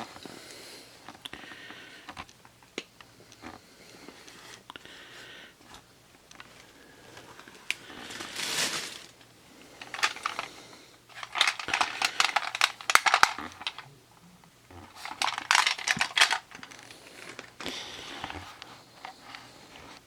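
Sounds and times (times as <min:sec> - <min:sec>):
plastic packaging crinkling: 0:06.3 - 0:09.2, 0:09.8 - 0:13.9, 0:14.7 - 0:20.0.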